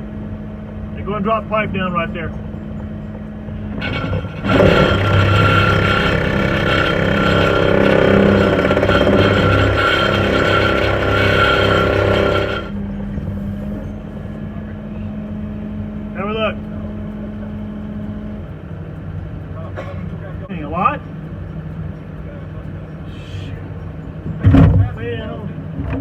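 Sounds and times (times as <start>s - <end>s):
water pump engine running: 3.7s - 12.8s.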